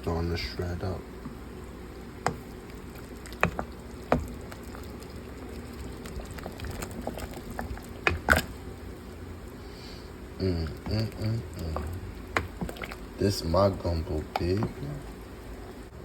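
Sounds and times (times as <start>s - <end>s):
gumbo simmering and bubbling: 0.0s - 16.0s
bubbles popping: 2.3s - 8.7s, 10.4s - 13.2s.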